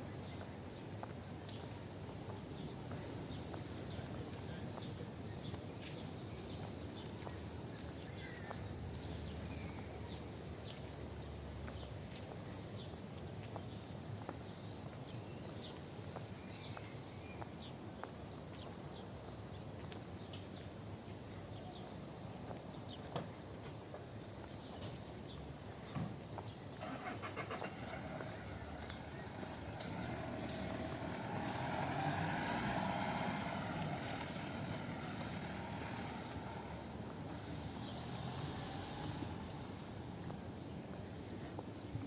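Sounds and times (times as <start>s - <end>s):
steady background noise: 0.0s - 42.0s
light footsteps: 33.2s - 42.0s.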